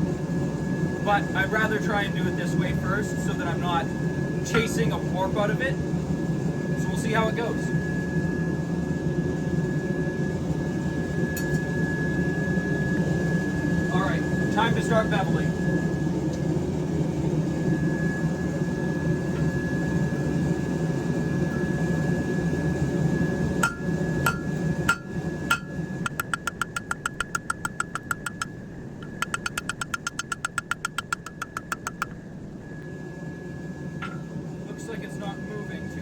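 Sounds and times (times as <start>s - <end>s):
hammer striking steel on anvil: 23.6s - 32.1s.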